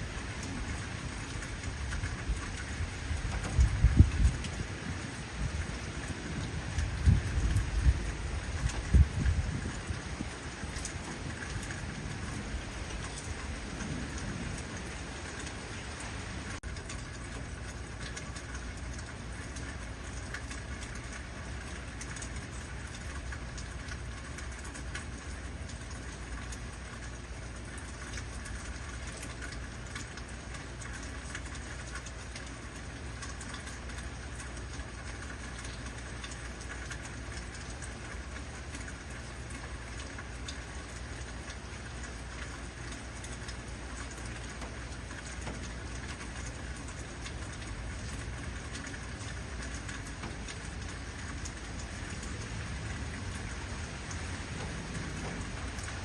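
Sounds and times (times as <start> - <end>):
heavy rain hissing: 47.1 - 56.0.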